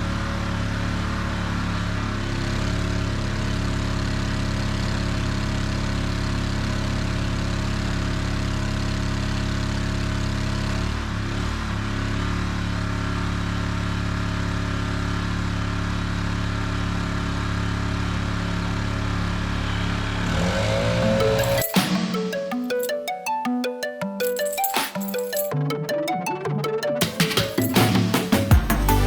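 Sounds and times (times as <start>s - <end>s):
engine idling and revving: 0.0s - 22.0s.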